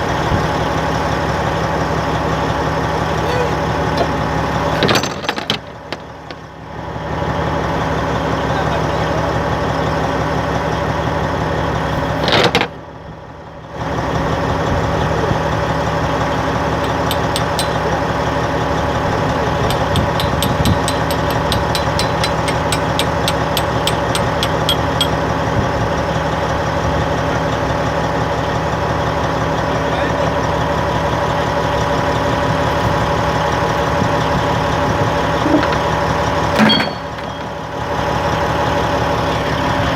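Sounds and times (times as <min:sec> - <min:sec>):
bulldozer diesel engine idling: 0:00.0 - 0:39.9
fast light ticks: 0:16.8 - 0:18.0, 0:19.6 - 0:25.2.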